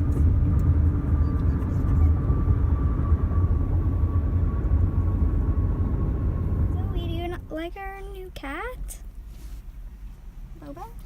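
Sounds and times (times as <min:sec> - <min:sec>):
car cabin low rumble: 0:00.0 - 0:11.0.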